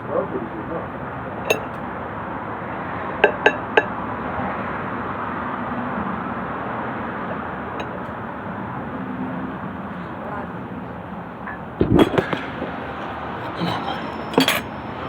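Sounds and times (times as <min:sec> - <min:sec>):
tableware clinking: 0:01.5 - 0:01.9, 0:03.2 - 0:03.9, 0:07.8 - 0:08.1, 0:11.5 - 0:15.0.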